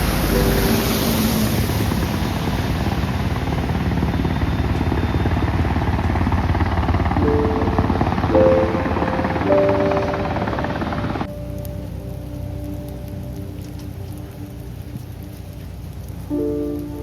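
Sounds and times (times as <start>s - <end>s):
music notes: 0.0s - 2.2s, 7.2s - 17.0s
helicopter rotor chop: 0.0s - 11.3s.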